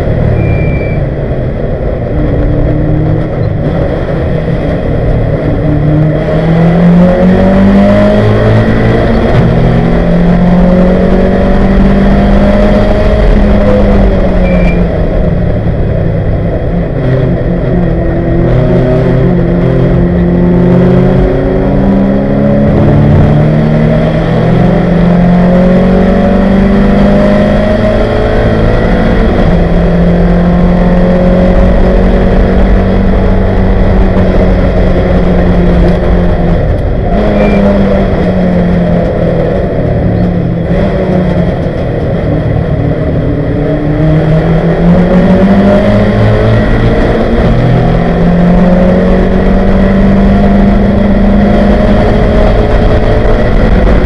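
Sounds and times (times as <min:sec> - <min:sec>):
race car engine revving hard: 0:01.8 - 0:54.0.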